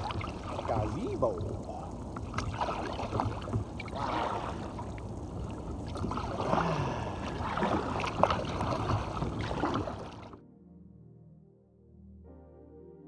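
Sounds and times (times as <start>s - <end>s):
water dripping: 0.0s - 10.3s
paddle splashing in water: 0.0s - 10.4s.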